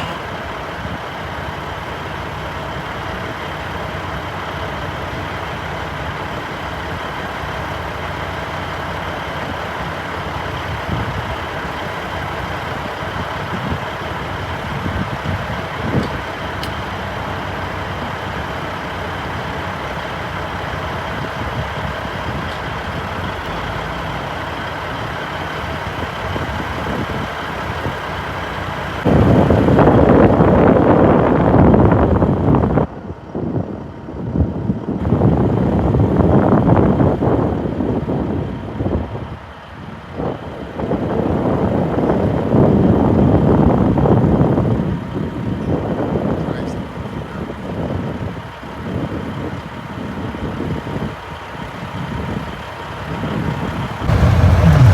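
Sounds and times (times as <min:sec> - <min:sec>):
truck engine hum: 0:00.0 - 0:29.8, 0:53.7 - 0:54.9
road noise: 0:00.0 - 0:30.5, 0:53.7 - 0:54.9
loud rush of noise: 0:54.0 - 0:54.9.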